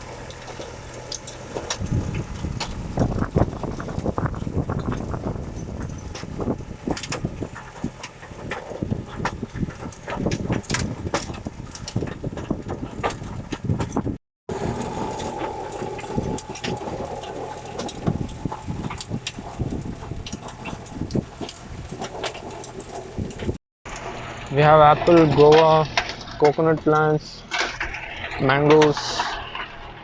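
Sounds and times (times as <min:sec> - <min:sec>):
diesel tractor engine running: 0:00.0 - 0:28.3
sharp knocks and rattles: 0:00.0 - 0:30.0
steady high whine: 0:14.5 - 0:27.5.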